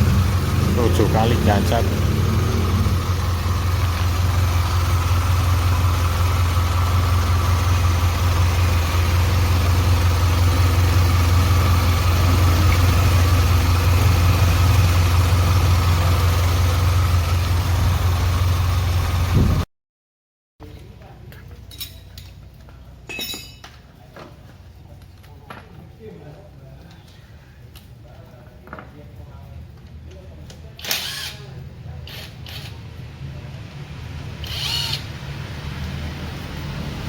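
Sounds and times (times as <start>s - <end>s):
car engine idling: 0.0s - 19.6s.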